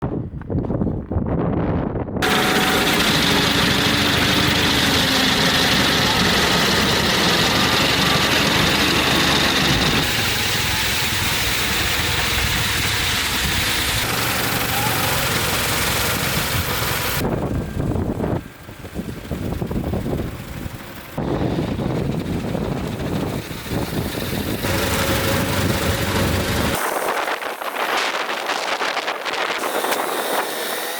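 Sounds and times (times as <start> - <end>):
faint electric motor whine: 2.2 - 20.5, 21.2 - 30.9
snowblower rushing: 2.2 - 30.9.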